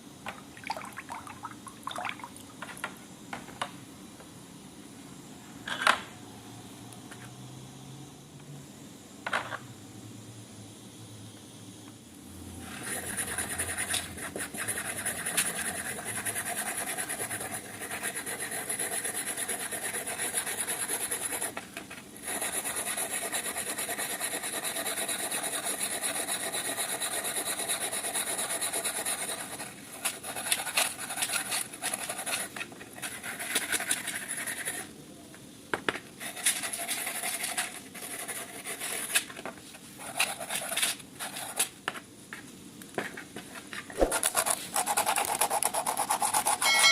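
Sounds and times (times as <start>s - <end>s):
abrasive rubbing on steel wrench: 46.5s - 46.9s.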